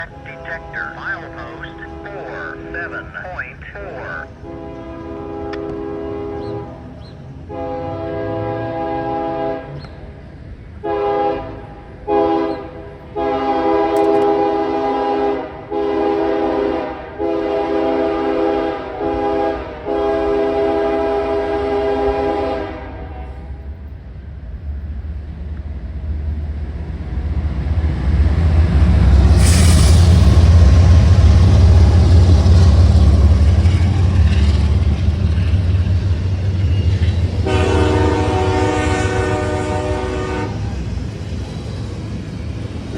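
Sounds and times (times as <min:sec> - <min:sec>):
train horn blasts: 0:00.0 - 0:02.0, 0:04.3 - 0:09.8, 0:10.8 - 0:23.6, 0:37.4 - 0:40.8
train rumbling: 0:00.0 - 0:42.9.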